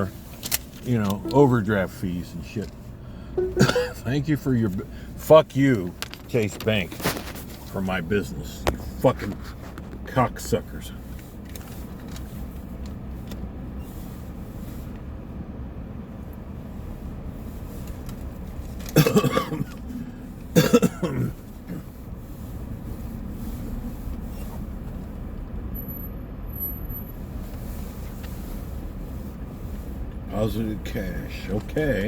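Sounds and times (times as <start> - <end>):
car engine idling: 0.0 - 32.0
man coughing: 3.4 - 4.1, 19.0 - 19.8, 20.6 - 21.8.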